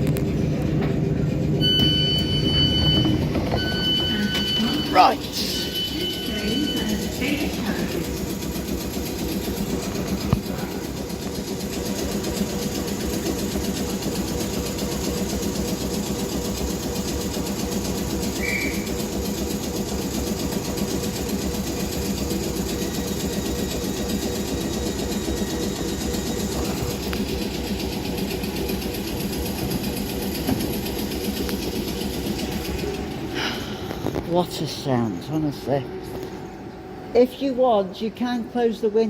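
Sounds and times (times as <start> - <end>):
traction motor hum: 0.0 - 39.0
wheel and track rumble: 0.0 - 39.0.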